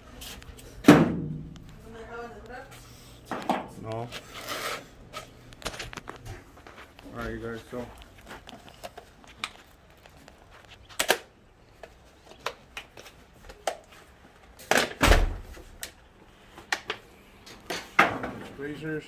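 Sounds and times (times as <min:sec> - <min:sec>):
heavy knock and thump: 0:00.8 - 0:01.6.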